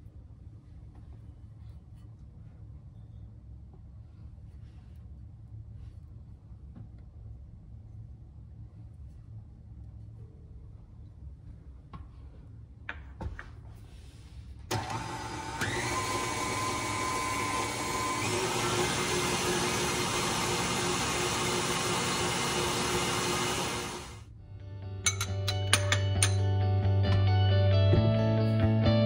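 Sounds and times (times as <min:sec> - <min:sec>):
stand mixer whisking: 0:14.7 - 0:24.2.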